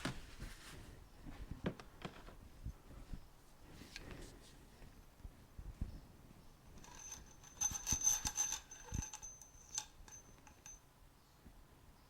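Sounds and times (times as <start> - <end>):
thin metallic ring: 6.7 - 10.9
metal fork parts clinking: 6.8 - 10.8.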